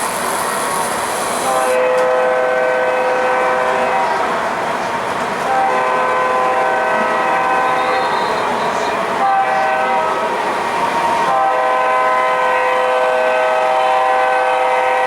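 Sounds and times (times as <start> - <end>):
model train running on track: 0.0 - 15.0
model train horn blast: 1.4 - 4.2, 5.5 - 8.6, 9.2 - 10.2, 11.3 - 15.0.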